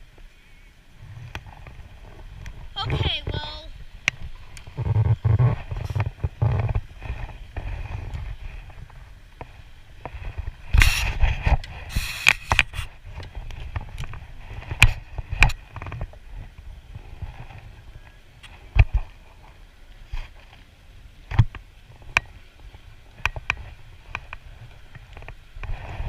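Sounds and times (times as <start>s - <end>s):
rushes of noise: 0.0s - 20.5s, 21.2s - 26.0s
water movement: 0.0s - 26.0s
gear knocking against kayak: 4.0s - 16.2s.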